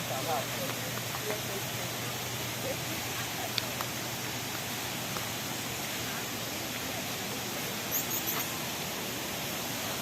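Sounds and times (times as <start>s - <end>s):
faint high chirps: 7.9s - 8.5s.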